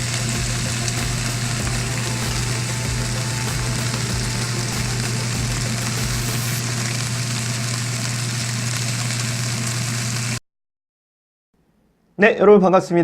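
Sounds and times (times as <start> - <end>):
constant low hum: 0.0 - 10.0
meat sizzling in a frying pan: 0.0 - 10.4.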